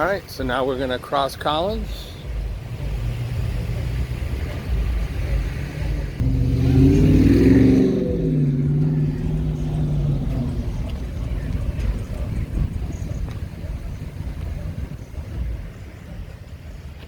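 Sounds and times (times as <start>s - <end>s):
low traffic rumble: 0.0s - 17.0s
car engine accelerating: 2.7s - 16.0s.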